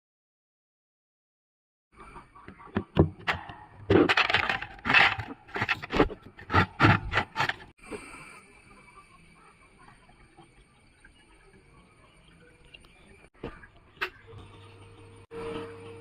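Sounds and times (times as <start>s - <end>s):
hard parts knocking and scraping: 2.4s - 7.7s
faint high-pitched tone: 8.0s - 16.0s.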